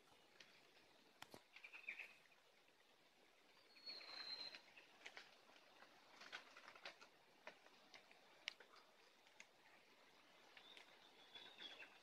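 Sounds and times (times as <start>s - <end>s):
faint bird chirps: 1.4s - 2.4s, 3.5s - 5.0s, 10.2s - 12.0s.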